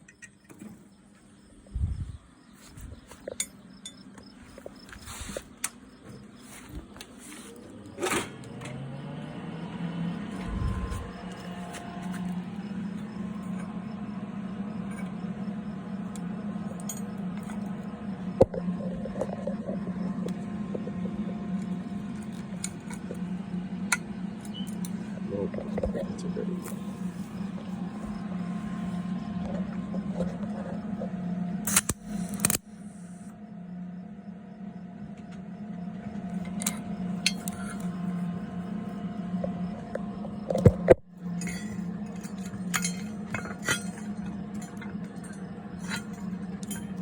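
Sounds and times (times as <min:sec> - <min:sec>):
small electric motor whining: 0:07.2 - 0:33.4
metal tools clinking: 0:36.4 - 0:37.9, 0:41.4 - 0:47.0.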